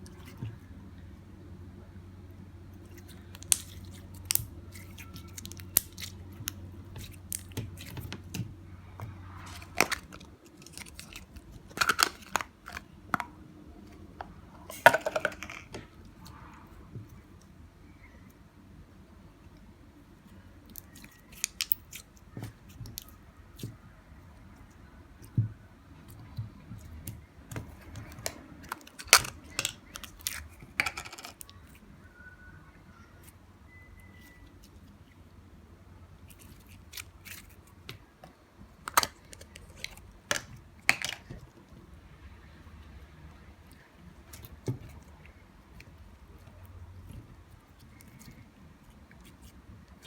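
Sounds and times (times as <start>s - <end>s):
slime clicking and popping: 3.4s - 8.4s.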